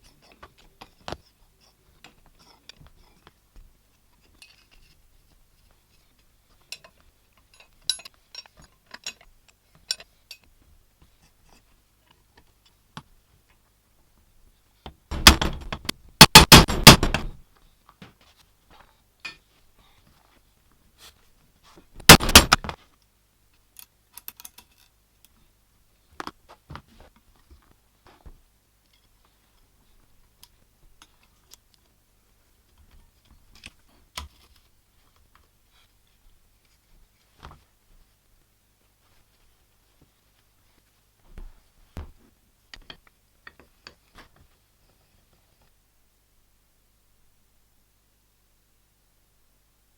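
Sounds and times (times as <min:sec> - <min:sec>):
rapid rattling clicks: 0:22.0 - 0:22.7.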